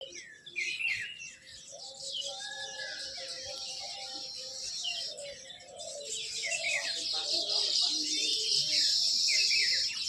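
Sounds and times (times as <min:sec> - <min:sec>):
small birds chirping: 0:02.9 - 0:10.0.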